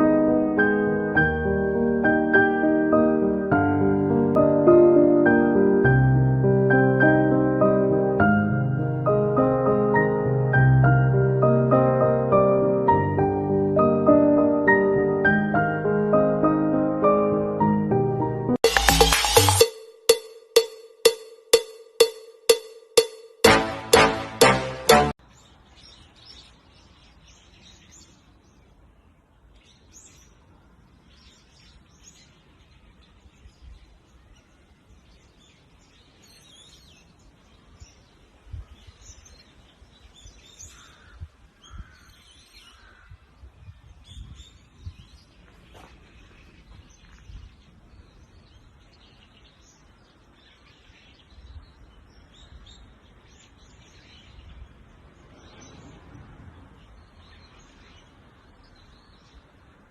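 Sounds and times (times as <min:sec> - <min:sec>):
faint birds chirping: 0:25.2 - 0:59.9.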